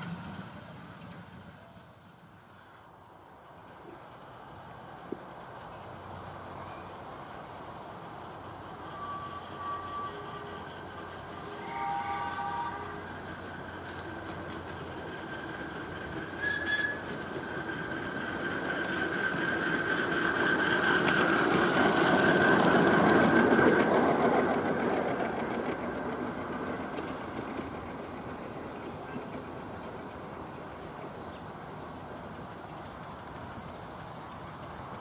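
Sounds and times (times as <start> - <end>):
miniature train running on track: 0.0 - 35.0
thin high squeal: 8.8 - 10.8, 16.3 - 17.9.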